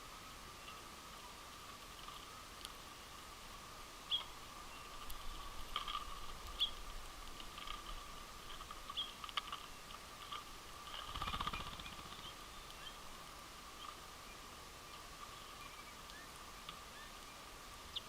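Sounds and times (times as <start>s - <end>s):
faint steady hum: 0.0s - 18.0s
finches chirping: 4.0s - 6.9s, 8.8s - 9.9s, 11.0s - 13.1s, 13.7s - 18.0s.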